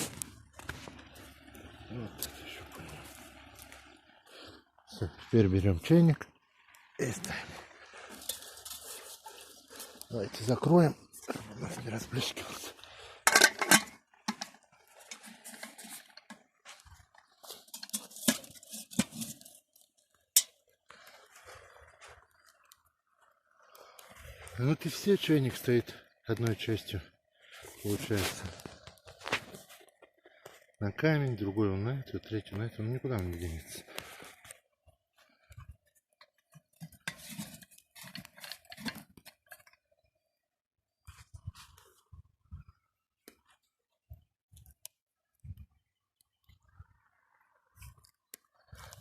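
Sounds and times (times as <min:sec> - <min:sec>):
kettle clinking on stones: 0:08.1 - 0:12.4, 0:13.2 - 0:21.2
metal kettle clinking on stones: 0:13.2 - 0:16.4, 0:17.6 - 0:19.5, 0:20.3 - 0:20.6.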